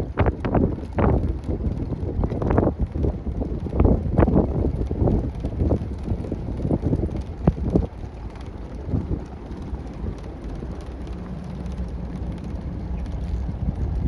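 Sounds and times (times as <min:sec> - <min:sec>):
vehicle driving rumble: 0:00.0 - 0:14.0.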